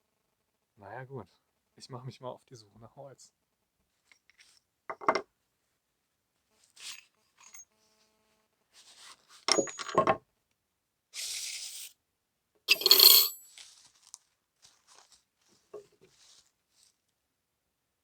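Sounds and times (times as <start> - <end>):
metallic clinks ringing: 12.7 - 13.5.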